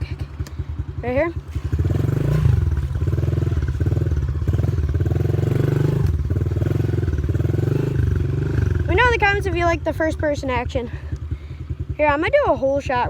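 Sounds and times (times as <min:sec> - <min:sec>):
dirt bike engine revving: 0:01.0 - 0:12.5.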